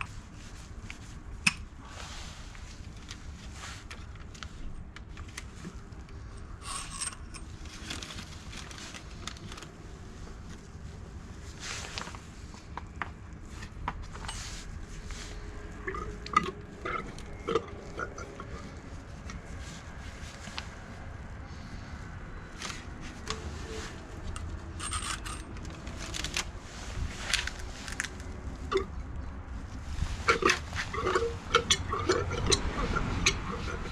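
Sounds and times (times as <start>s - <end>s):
scrapes and light knocks: 0.0s - 16.1s, 22.5s - 28.5s.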